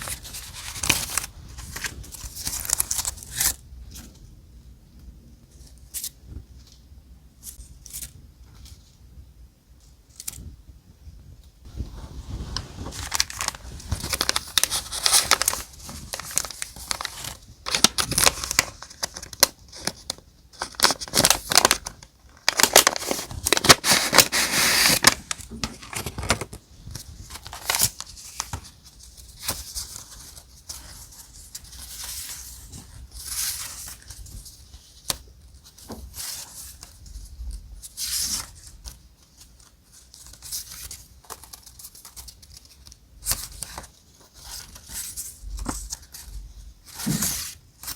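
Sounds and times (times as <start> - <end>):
paper rustling and tearing: 12.0 - 35.2.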